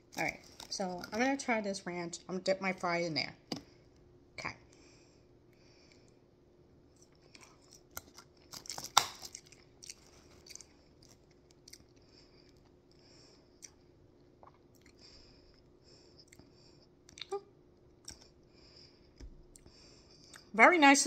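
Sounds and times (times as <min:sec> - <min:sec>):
person chewing crunchy food: 0:06.9 - 0:18.4.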